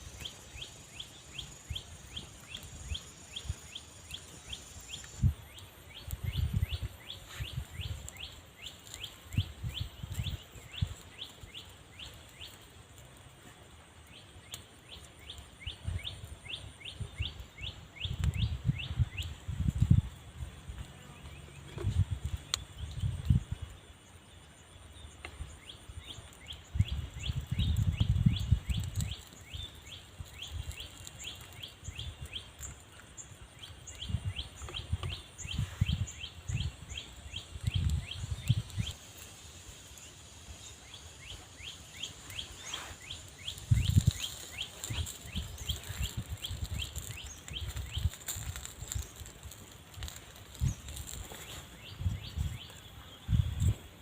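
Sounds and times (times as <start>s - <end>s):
bird chirping: 0.0s - 12.6s, 39.9s - 53.8s.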